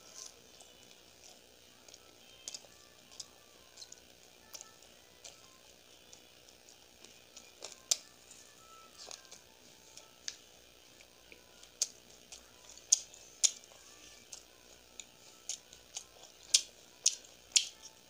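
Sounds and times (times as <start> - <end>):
chewing: 0.0 - 18.0
wet lip smacks and clicks: 15.5 - 17.8.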